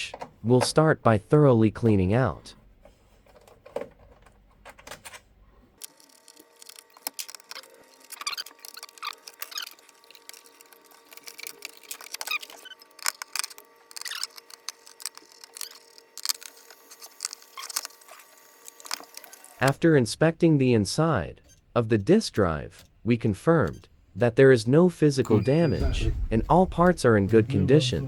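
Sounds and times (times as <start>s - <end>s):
short squeaks: 6.9s - 16.0s, 21.4s - 24.3s, 25.2s - 28.0s.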